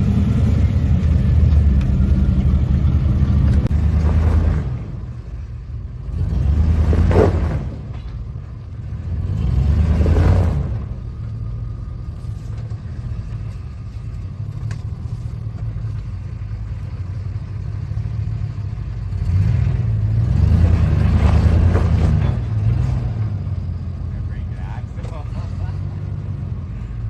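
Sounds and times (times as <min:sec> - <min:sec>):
truck engine revving: 0:00.0 - 0:27.0.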